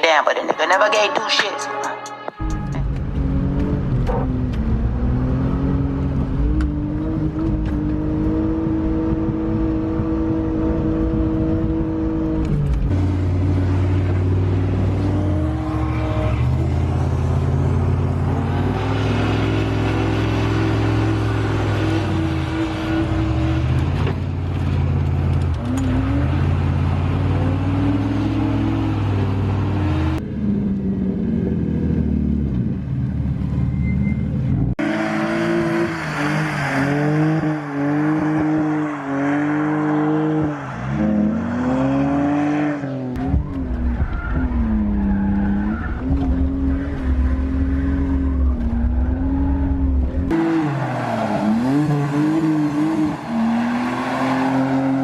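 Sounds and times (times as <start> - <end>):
car engine revving hard: 3.1 - 23.8, 34.7 - 43.3, 50.0 - 55.0
tyres skidding: 12.4 - 30.2, 33.2 - 55.0.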